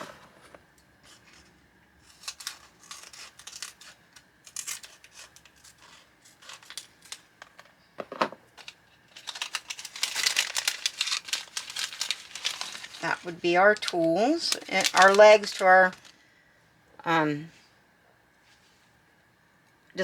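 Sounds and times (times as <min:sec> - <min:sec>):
packaging bag crinkling: 0:01.1 - 0:07.6, 0:08.6 - 0:16.2.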